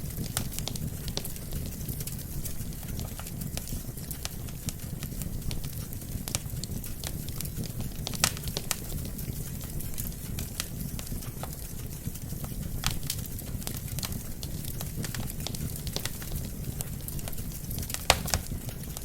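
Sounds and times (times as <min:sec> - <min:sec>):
low rumble of flames: 0:00.0 - 0:19.0
wood fire crackling and popping: 0:00.0 - 0:19.0.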